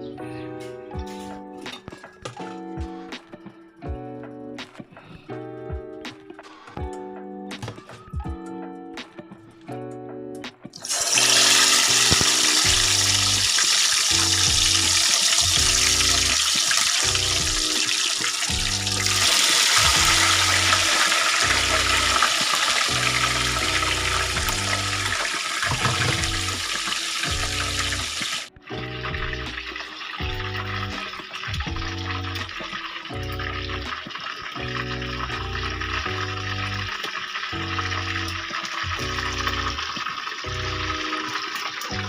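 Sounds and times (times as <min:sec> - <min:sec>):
soft rhythmic background music: 0:00.0 - 0:42.0
water running from a tap: 0:10.8 - 0:42.0.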